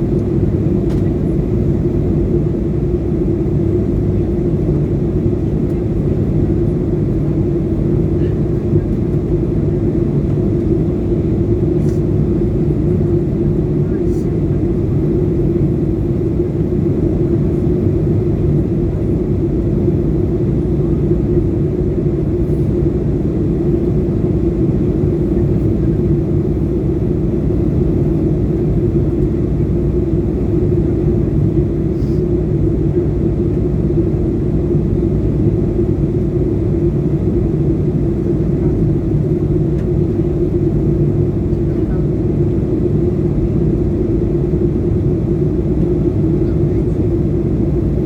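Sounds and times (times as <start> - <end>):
airliner cabin drone: 0.0 - 48.0.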